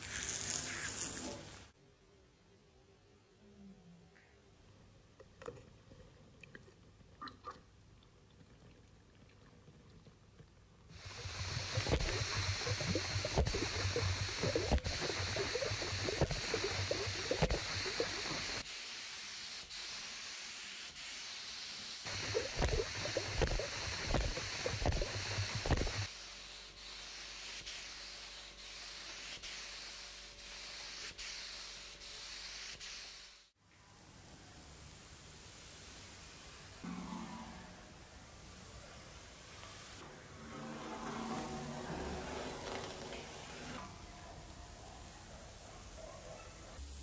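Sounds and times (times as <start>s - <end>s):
sanding strokes: 11.0s - 18.6s.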